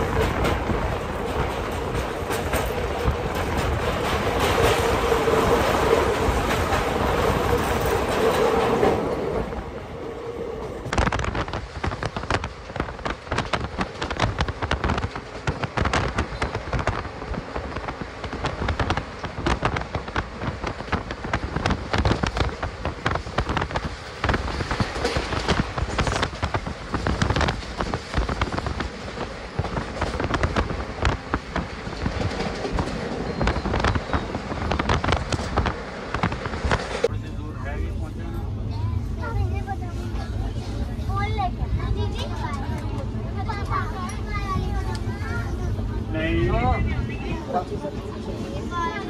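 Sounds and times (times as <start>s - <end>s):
train wheels rumbling and rattling: 0.0s - 49.0s
sharp clicks and crackles: 10.8s - 37.1s.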